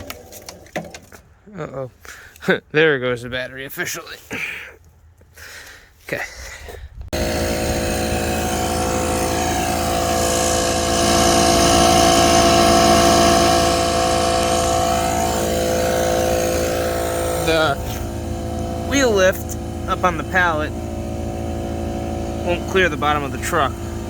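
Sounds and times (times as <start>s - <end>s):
engine running steadily: 7.1s - 24.0s.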